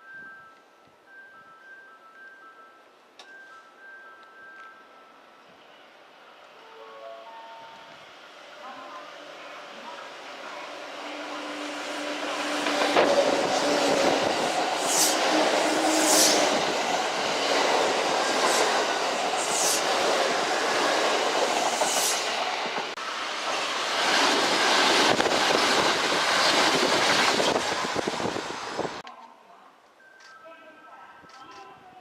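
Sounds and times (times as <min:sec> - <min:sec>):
electric train rumbling past: 0:03.8 - 0:29.0.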